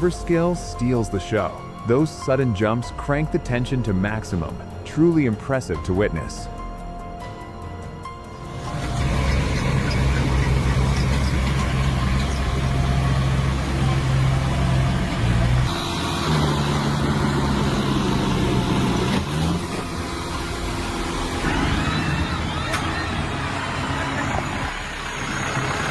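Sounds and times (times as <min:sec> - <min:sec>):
tractor engine drone: 0:00.0 - 0:25.9
higher engine drone: 0:06.6 - 0:25.9.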